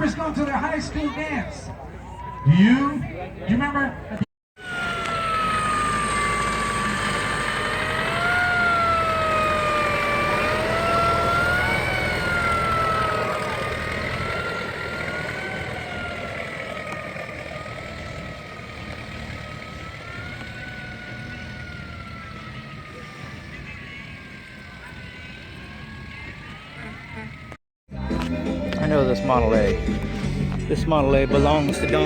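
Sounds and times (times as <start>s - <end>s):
siren wailing: 4.6s - 27.6s.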